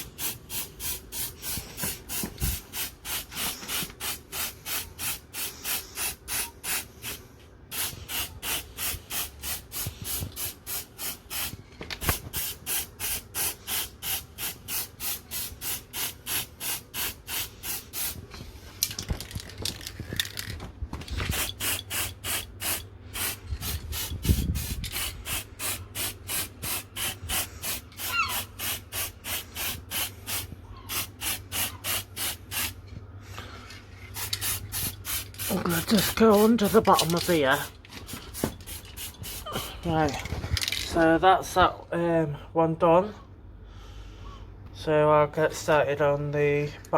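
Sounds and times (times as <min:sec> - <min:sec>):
spray paint can hissing: 0:00.0 - 0:18.2, 0:21.2 - 0:32.8, 0:34.1 - 0:39.5.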